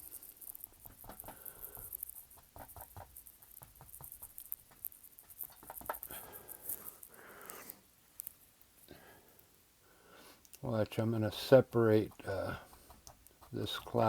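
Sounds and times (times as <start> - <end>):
paintbrush dabbing on canvas: 0.0 - 7.2, 11.2 - 14.0.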